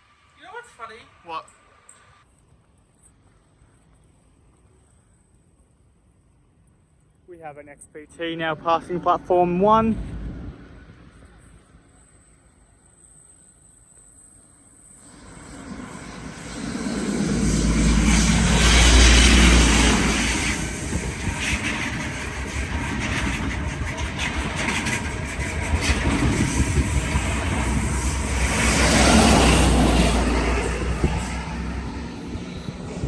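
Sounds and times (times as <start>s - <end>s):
diesel train engine hum: 8.6s - 33.0s
train wheels clattering on rails: 15.1s - 33.0s.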